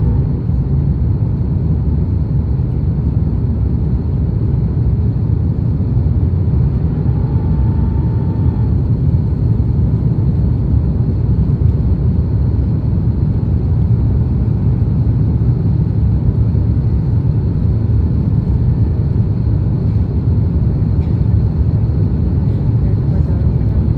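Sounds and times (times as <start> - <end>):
airplane cabin engine rumble: 0.0 - 23.9
faint short whine: 6.6 - 9.3.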